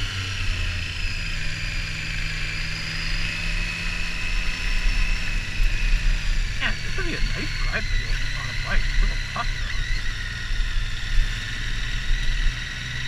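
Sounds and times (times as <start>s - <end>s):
faint high whine: 0.0s - 13.0s
motorcycle engine running: 0.0s - 13.0s
wind and road noise: 0.0s - 13.0s.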